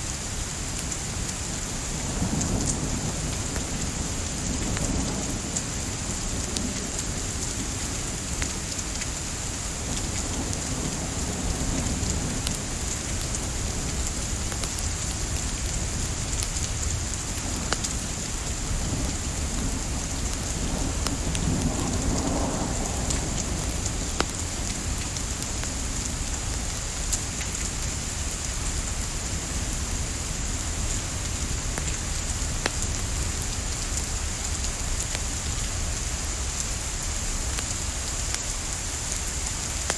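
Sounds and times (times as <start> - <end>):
steady rain hiss: 0.0 - 39.9
wood fire crackling: 11.3 - 39.9.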